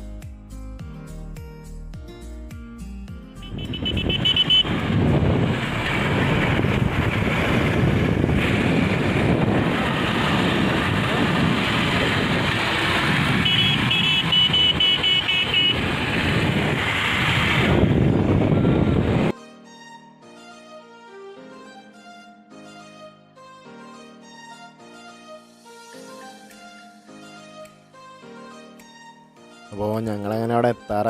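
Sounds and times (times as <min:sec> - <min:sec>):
vehicle road noise: 0:03.3 - 0:19.3
short high horn toots: 0:03.4 - 0:04.8, 0:13.4 - 0:15.8
wind rushing over microphone: 0:03.5 - 0:19.3.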